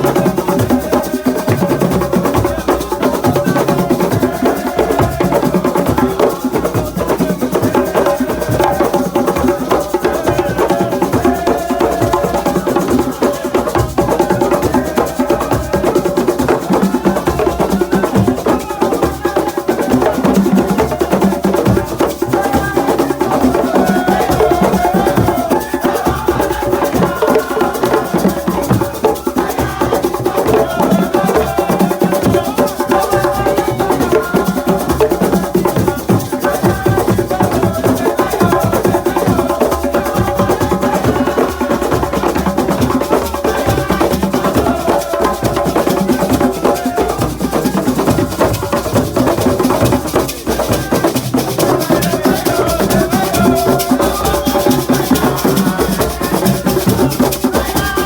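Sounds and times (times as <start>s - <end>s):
group singing: 0.0s - 58.0s
hand drums playing rhythm: 0.0s - 58.0s.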